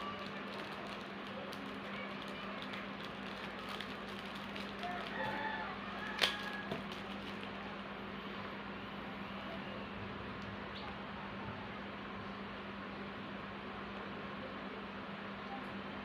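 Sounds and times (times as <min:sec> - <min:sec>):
steady low hum: 0:00.0 - 0:16.0
faint chicken calls: 0:04.8 - 0:06.8.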